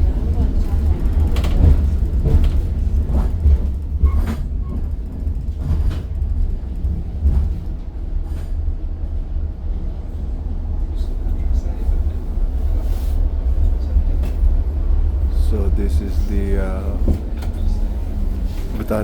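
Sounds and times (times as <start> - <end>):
electric tram rumble: 0.0 - 19.0
wheels knocking on track: 0.1 - 8.0.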